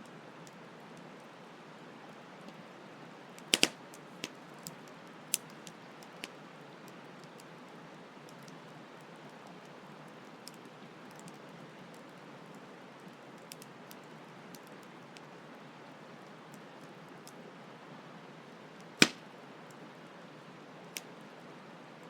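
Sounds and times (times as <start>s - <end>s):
campfire crackling and popping: 3.4s - 15.4s, 18.8s - 19.9s.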